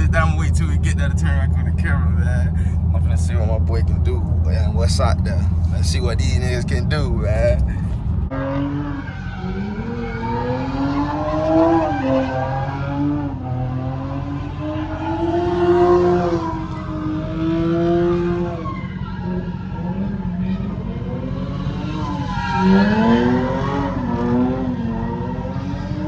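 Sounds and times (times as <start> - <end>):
steady low rumble: 0.0 - 8.3
car engine at high revs: 0.0 - 26.0.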